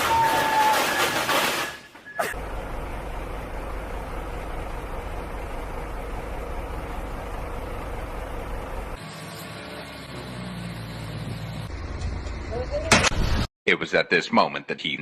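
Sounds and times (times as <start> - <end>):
car road noise rumble: 2.3 - 9.1.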